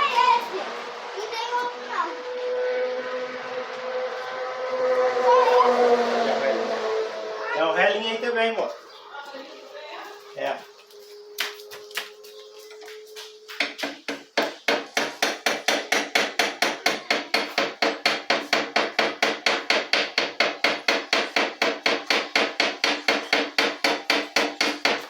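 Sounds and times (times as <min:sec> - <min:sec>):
hammer striking metal: 0:13.6 - 0:25.0.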